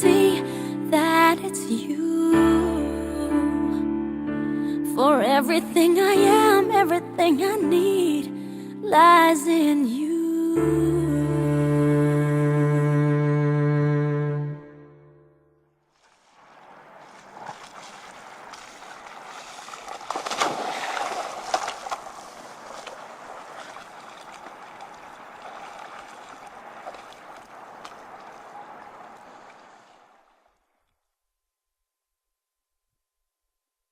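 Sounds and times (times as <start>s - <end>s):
water rushing and splashing: 15.9s - 30.6s.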